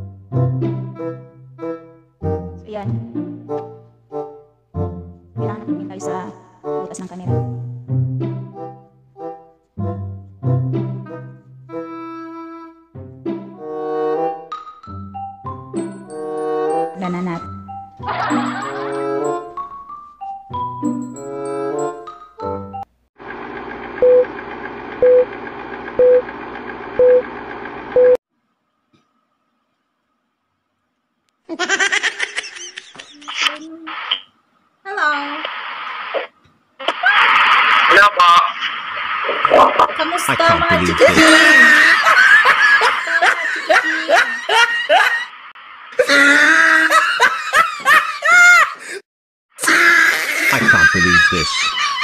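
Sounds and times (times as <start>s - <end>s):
person laughing: 31.5s - 33.8s, 39.6s - 45.3s, 46.0s - 49.0s, 49.6s - 52.0s.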